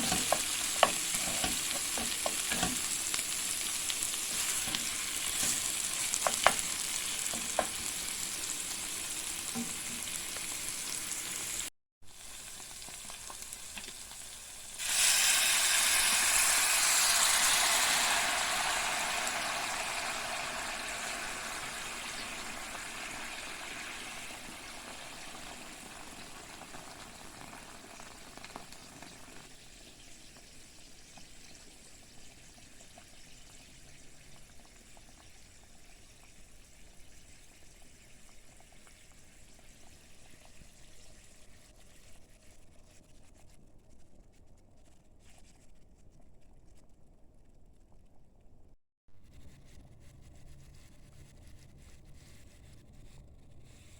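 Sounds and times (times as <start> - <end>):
utensil clicking on a pan: 0.0 - 3.2, 4.7 - 8.0
food sizzling in a pan: 0.0 - 41.6.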